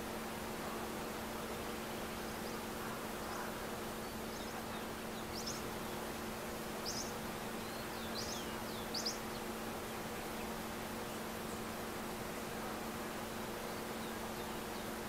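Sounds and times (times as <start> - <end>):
small birds chirping: 1.7 - 6.2, 6.8 - 11.8.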